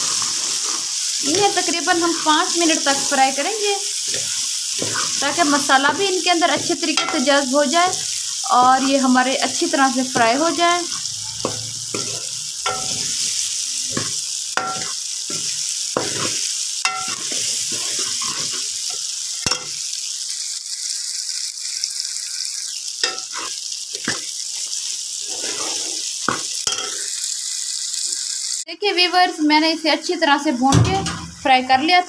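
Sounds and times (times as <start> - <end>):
metal spoon scraping a pan: 0.0 - 19.8, 23.0 - 24.3, 25.2 - 27.1
potatoes sizzling in oil: 0.0 - 32.0.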